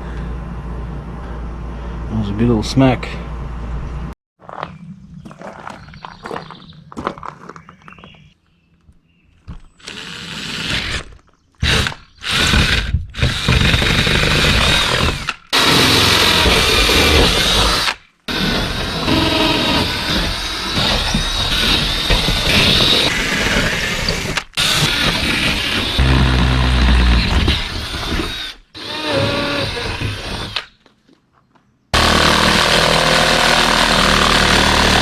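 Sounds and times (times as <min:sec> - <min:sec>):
power tool whining and grinding: 0:09.8 - 0:30.7, 0:32.0 - 0:35.0.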